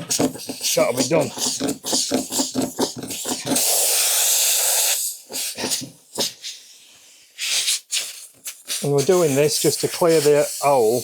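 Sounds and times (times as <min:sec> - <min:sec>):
steady hiss: 0:07.4 - 0:11.0.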